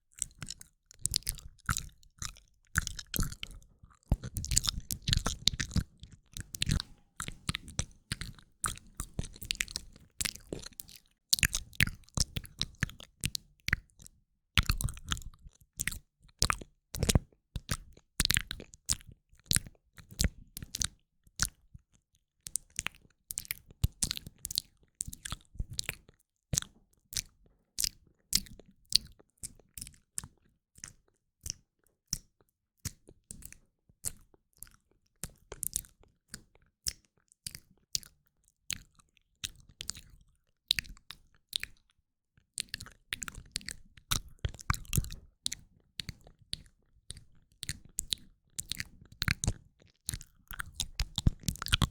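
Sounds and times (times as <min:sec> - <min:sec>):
wet mouth clicks and smacks: 0:00.1 - 0:14.0, 0:14.6 - 0:21.6, 0:26.6 - 0:41.8, 0:42.6 - 0:51.9.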